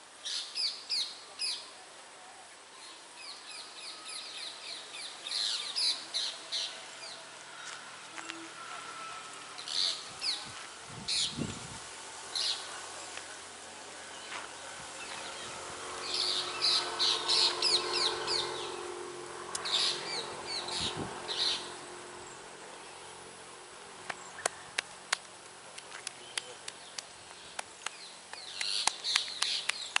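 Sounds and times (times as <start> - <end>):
birds chirping: 12.3 - 23.4.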